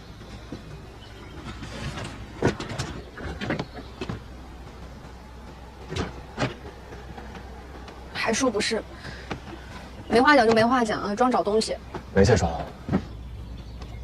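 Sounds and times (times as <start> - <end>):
low steady hum: 0.0 - 14.0
knocks and clicks of rummaging: 0.4 - 8.1.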